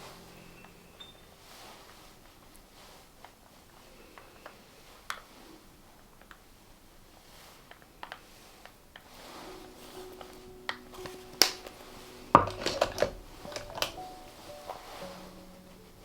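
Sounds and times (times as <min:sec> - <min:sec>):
plastic packaging clicking and tapping: 0:12.4 - 0:14.1.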